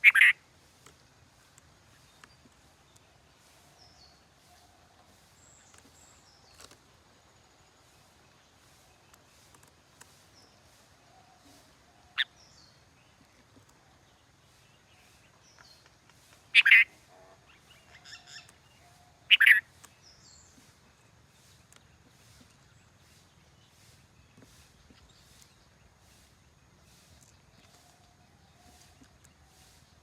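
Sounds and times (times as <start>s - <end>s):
bird calling loudly: 0.0s - 0.4s, 16.5s - 17.0s, 19.3s - 19.7s
soft bird calls: 0.0s - 6.9s, 7.9s - 30.0s.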